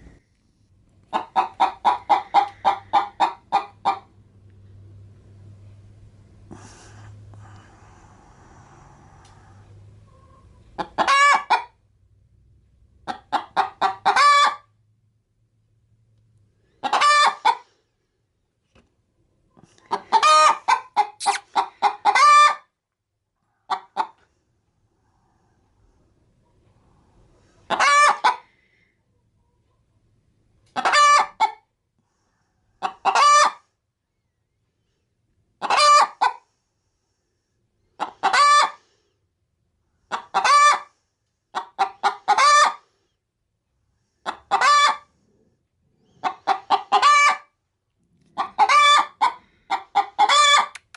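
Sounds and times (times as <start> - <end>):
hen cackling: 1.1 - 4.2, 10.1 - 11.8, 13.0 - 14.7, 16.8 - 17.7, 19.8 - 22.7, 27.7 - 28.5, 30.7 - 31.6, 32.8 - 33.6, 35.6 - 36.4, 38.0 - 38.8, 40.1 - 40.9, 41.5 - 42.8, 44.2 - 45.1, 46.2 - 47.5, 48.4 - 50.9.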